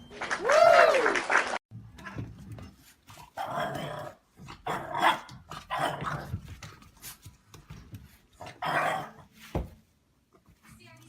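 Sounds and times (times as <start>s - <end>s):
dog barking: 4.8s - 6.1s.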